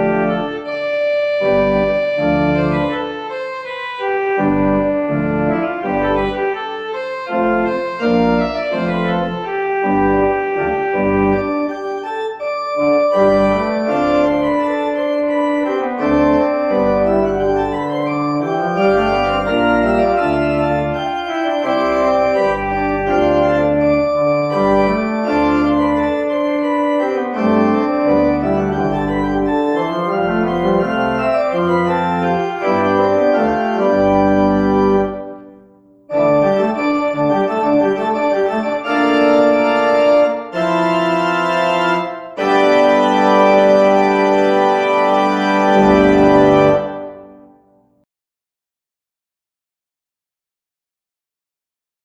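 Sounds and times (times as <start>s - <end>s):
organ music: 0.0s - 47.8s.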